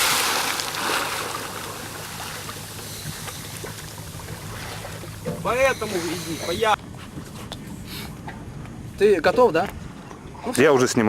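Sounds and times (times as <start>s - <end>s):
water sloshing: 0.0s - 8.7s
idling boat engine hum: 0.0s - 10.6s.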